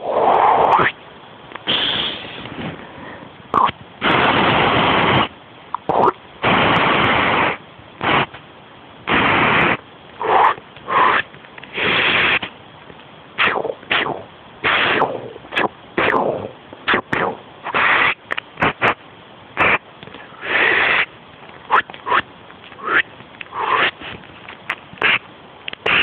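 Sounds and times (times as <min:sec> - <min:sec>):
person making mouth noises: 0:00.0 - 0:01.0, 0:01.6 - 0:02.5, 0:03.5 - 0:06.2, 0:09.1 - 0:12.5, 0:13.4 - 0:19.0, 0:19.6 - 0:24.2, 0:25.0 - 0:26.0.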